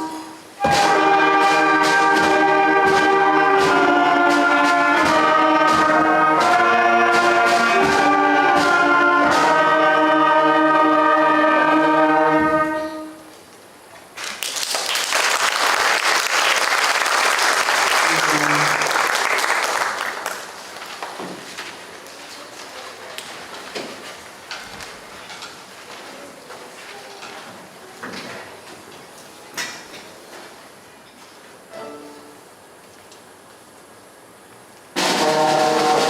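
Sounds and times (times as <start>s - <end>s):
drum strokes: 0.0s - 13.2s, 35.0s - 36.0s
concert band playing: 0.0s - 13.3s, 35.0s - 36.0s
audience applause: 14.2s - 21.2s.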